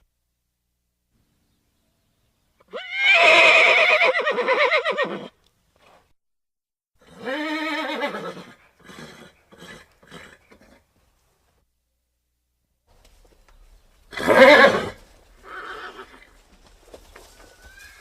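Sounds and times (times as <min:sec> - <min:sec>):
horse whinnying: 0:02.6 - 0:05.4, 0:07.0 - 0:10.8, 0:14.1 - 0:16.3.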